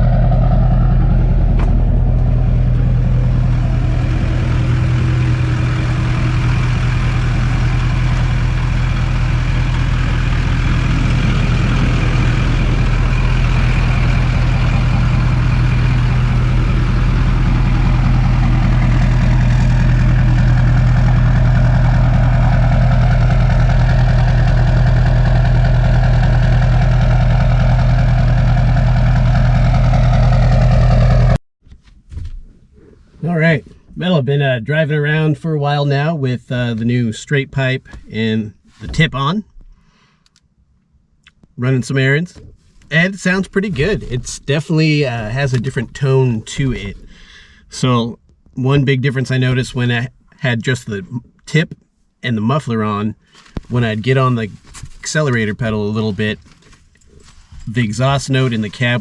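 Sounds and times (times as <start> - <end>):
diesel engine idling: 0.0 - 31.4, 57.8 - 59.0.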